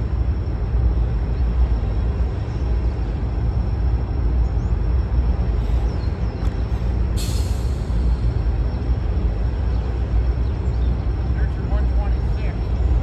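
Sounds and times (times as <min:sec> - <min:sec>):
freight train rumbling: 0:00.0 - 0:13.0
short hiss: 0:07.2 - 0:08.2.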